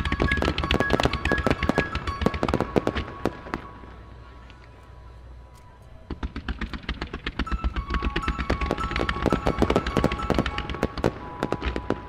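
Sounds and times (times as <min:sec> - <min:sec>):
fireworks bursting: 0:00.0 - 0:04.2, 0:06.0 - 0:12.0.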